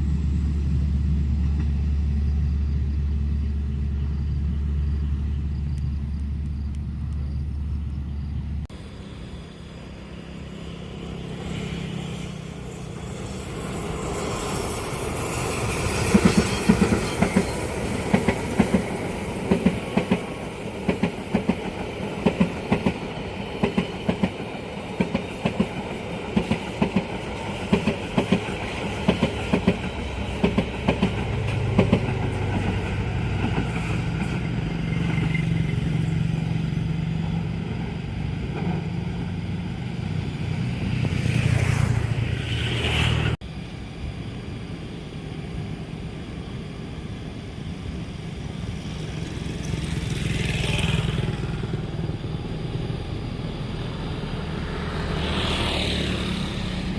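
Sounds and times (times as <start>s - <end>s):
train passing: 0.0s - 56.9s
wheels clacking over rail joints: 13.7s - 36.3s.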